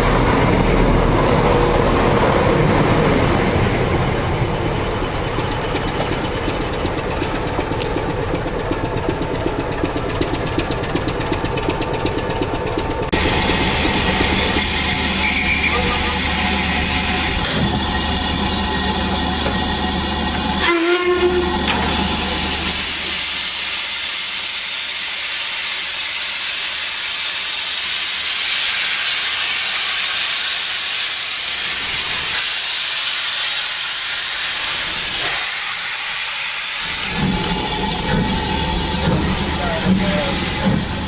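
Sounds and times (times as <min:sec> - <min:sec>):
steam locomotive hissing: 0:02.3 - 0:41.0.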